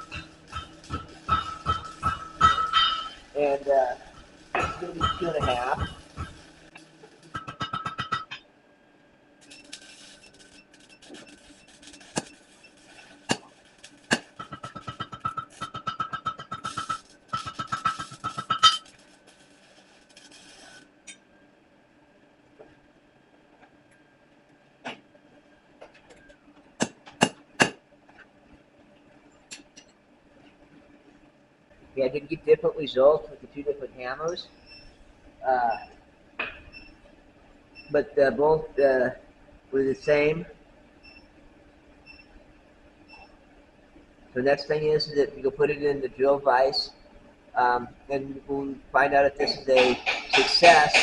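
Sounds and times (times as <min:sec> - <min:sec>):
hammer striking steel punch: 0:00.1 - 0:03.2, 0:04.6 - 0:06.4, 0:49.5 - 0:51.0.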